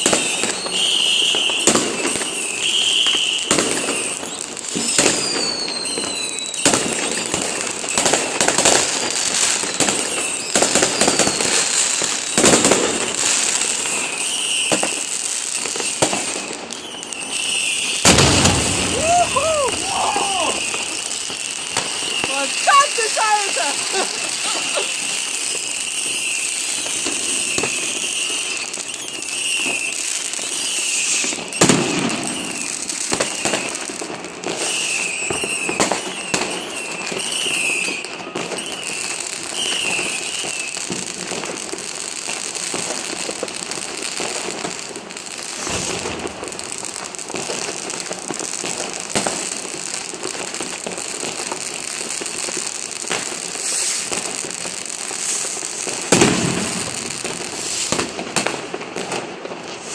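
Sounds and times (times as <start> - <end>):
firecrackers crackling: 0.0 - 59.9
firework bangs: 0.0 - 59.9
rockets whistling: 0.2 - 8.7, 9.3 - 33.8.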